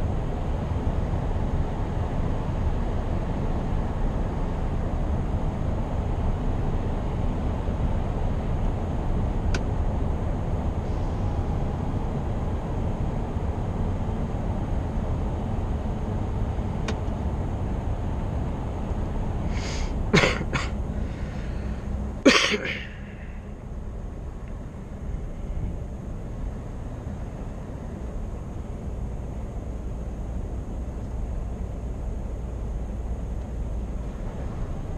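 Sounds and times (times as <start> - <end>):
road noise: 0.0 - 34.9
truck engine drone: 0.0 - 34.9
sharp air hissing bursts: 19.5 - 20.0.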